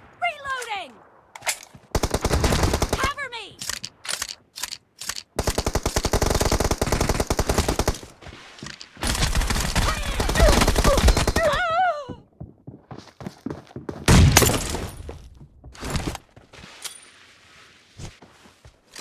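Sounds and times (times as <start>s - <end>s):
video game automatic gunfire: 1.9s - 3.1s, 5.4s - 8.0s.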